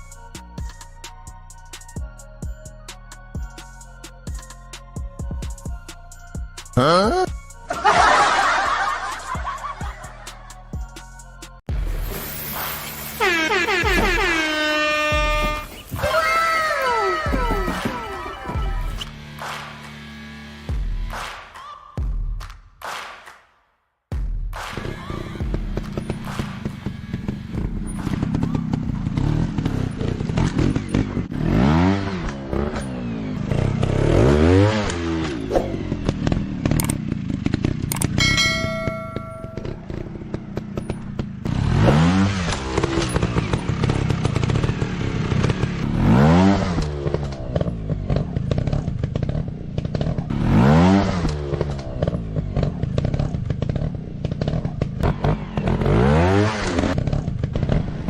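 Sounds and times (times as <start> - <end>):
motorcycle engines revving: 12.0 - 21.2, 24.7 - 58.0
short steady tone: 38.2 - 39.8.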